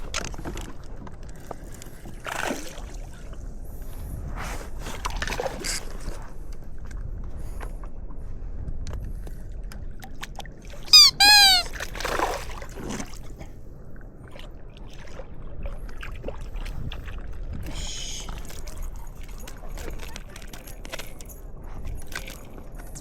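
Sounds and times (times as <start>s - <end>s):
water lapping and trickling: 0.0s - 10.9s, 11.6s - 23.0s
loud high-pitched squeal: 10.9s - 11.7s.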